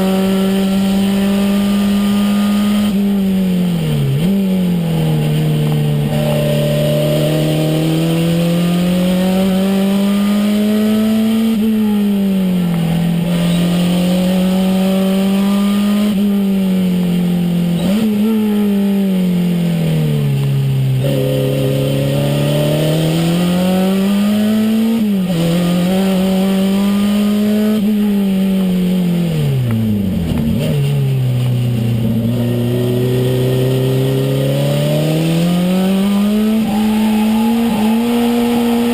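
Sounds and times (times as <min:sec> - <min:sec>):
car engine revving through gear changes: 0:00.0 - 0:38.9.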